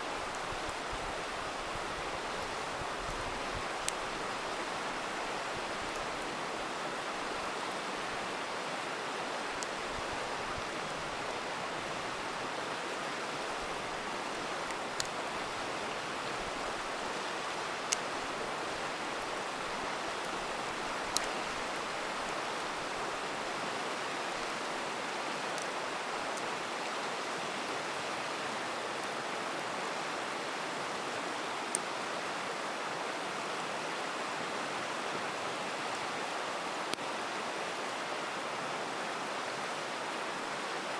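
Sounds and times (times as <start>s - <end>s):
river rushing: 0.0s - 40.9s
campfire crackling and popping: 0.2s - 8.2s, 13.4s - 23.3s.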